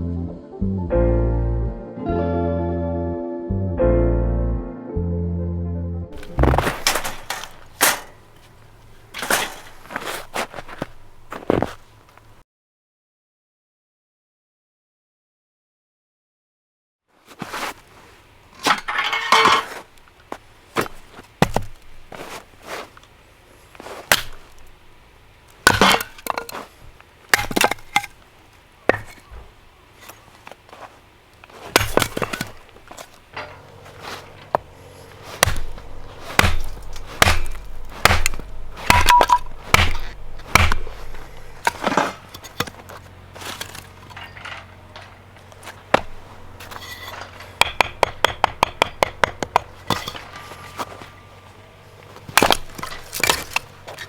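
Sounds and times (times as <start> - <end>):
sharp knocks and cracks: 6.2 - 11.8, 20.8 - 22.0, 24.0 - 24.8, 25.6 - 26.7, 27.3 - 28.2, 31.6 - 33.6, 35.4 - 50.5, 52.3 - 54.0.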